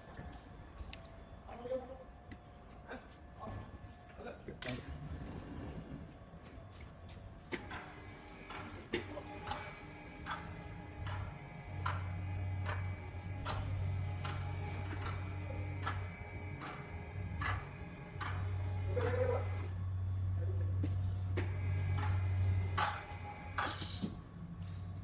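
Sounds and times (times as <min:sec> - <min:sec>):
low steady hum: 0:07.7 - 0:25.0.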